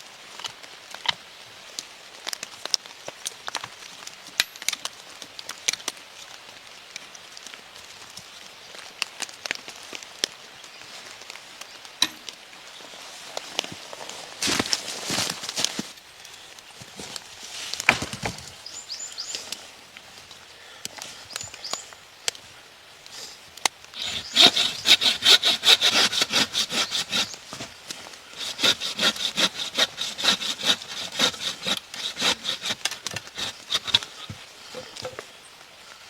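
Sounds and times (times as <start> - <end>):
hand saw cutting wood: 24.0 - 34.4.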